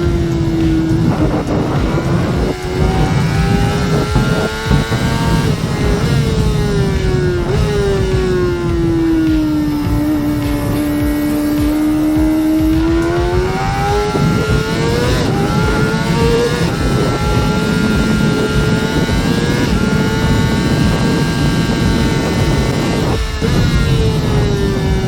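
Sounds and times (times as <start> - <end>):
motorcycle engine at high revs: 0.0 - 25.0.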